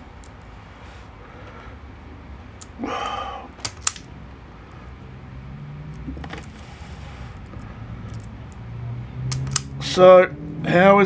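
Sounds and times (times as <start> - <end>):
small parts clicking and knocking: 3.6 - 4.1, 7.4 - 8.6, 9.3 - 9.7.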